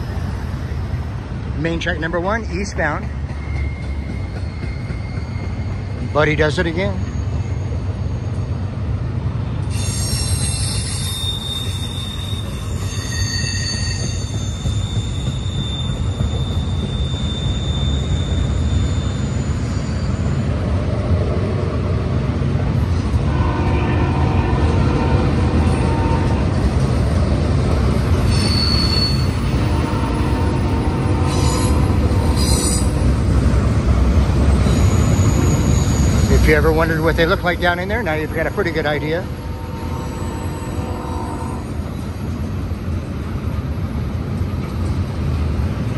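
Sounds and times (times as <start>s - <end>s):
train wheels rumbling on rail: 0.0s - 45.9s
high-pitched wheel squeals: 2.9s - 8.7s, 9.6s - 21.0s, 27.9s - 43.1s
low multi-tone whining: 23.0s - 43.9s.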